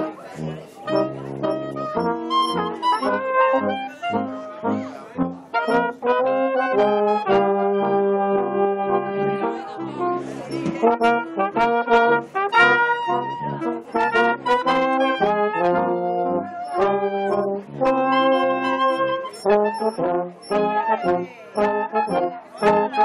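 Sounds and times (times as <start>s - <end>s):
brass section punchy chords: 10.8s - 23.0s.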